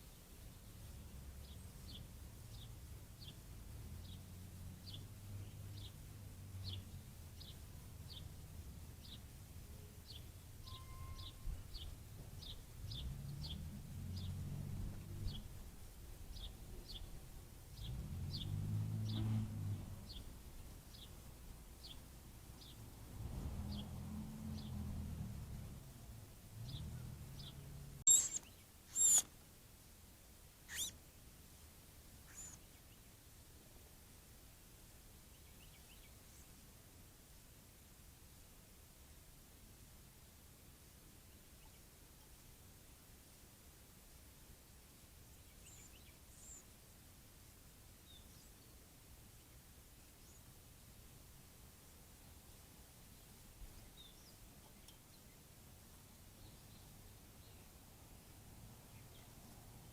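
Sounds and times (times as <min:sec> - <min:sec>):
bird high chirp: 0:10.1 - 0:13.6, 0:27.4 - 0:29.3, 0:30.7 - 0:31.0, 0:32.3 - 0:32.9, 0:45.6 - 0:46.6.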